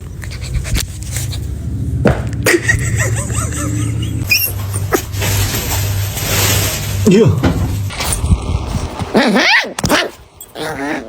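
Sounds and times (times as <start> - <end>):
puppies squeaking and whimpering: 4.2 - 5.1.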